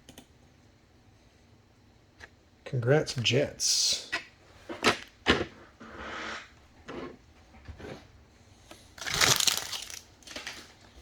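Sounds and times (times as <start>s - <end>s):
wrapper crinkling: 9.0s - 10.8s.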